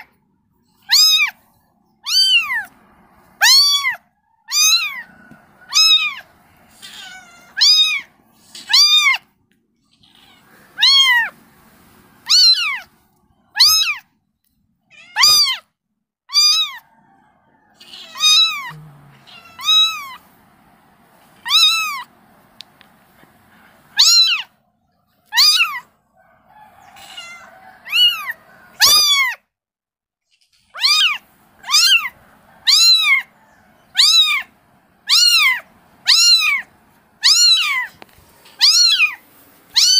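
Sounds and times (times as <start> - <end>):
kitten meowing: 0.8 - 1.4, 2.0 - 2.7, 3.4 - 5.1, 5.7 - 9.2, 9.9 - 11.4, 12.2 - 12.9, 13.5 - 14.0, 14.9 - 15.6, 16.3 - 16.8, 17.8 - 20.2, 21.4 - 22.1, 24.0 - 24.6, 25.3 - 25.8, 26.9 - 29.4, 30.6 - 33.3, 34.0 - 39.9.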